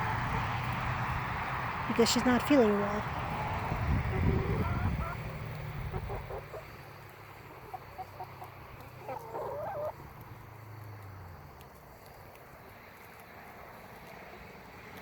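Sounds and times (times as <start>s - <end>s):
chickens clucking: 3.7s - 10.2s.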